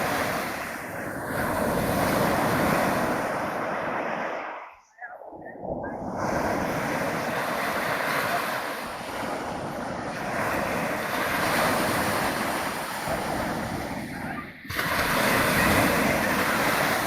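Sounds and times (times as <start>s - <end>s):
sea waves washing ashore: 0.0s - 17.0s
wind buffeting microphone: 0.0s - 17.0s.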